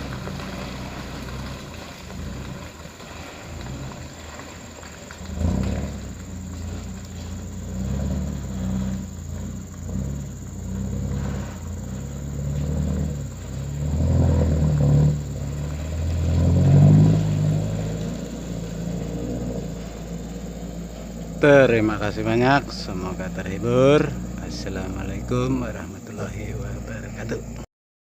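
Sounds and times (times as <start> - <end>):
truck diesel engine droning: 0.0 - 27.7.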